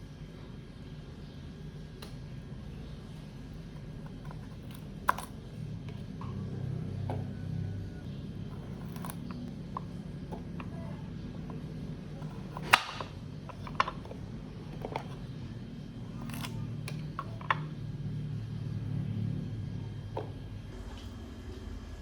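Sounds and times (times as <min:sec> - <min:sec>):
low steady hum: 0:00.0 - 0:22.0
objects clicking and tapping: 0:12.2 - 0:15.3.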